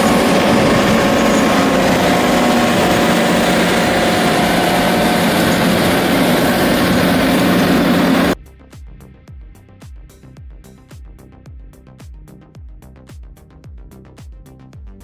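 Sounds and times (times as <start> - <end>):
dense loud noise: 0.0 - 8.4
machine engine running: 0.0 - 8.4
quiet background music with beat: 8.4 - 15.0.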